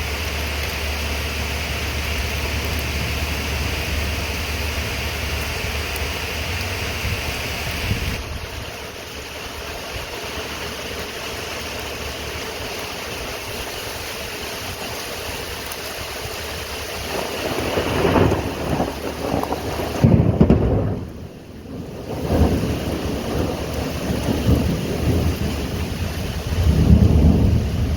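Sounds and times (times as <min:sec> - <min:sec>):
steady rain: 0:00.0 - 0:27.9
thunder rumbling: 0:00.0 - 0:27.9.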